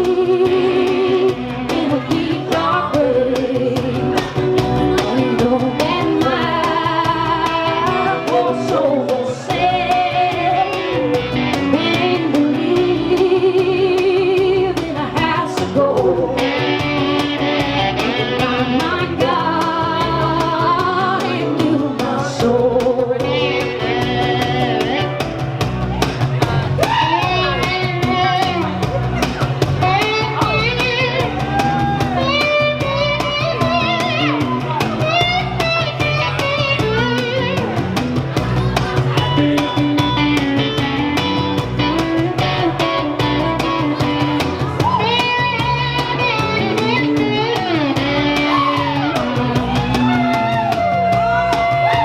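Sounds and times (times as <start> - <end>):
person singing: 0.0 - 25.3
electric guitar: 0.0 - 52.0
steady drum beat: 0.0 - 52.0.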